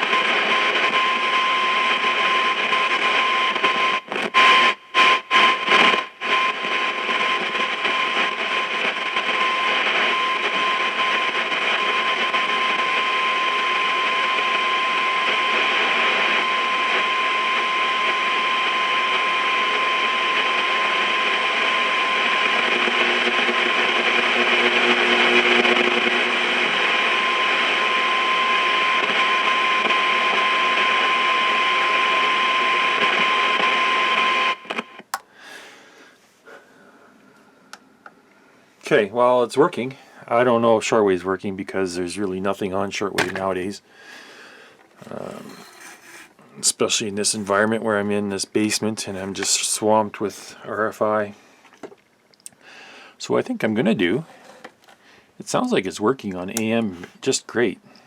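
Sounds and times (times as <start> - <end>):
high interference whine: 0.0 - 35.1, 44.9 - 47.9
radio static hiss: 0.0 - 35.2, 38.9 - 51.9, 53.0 - 57.9.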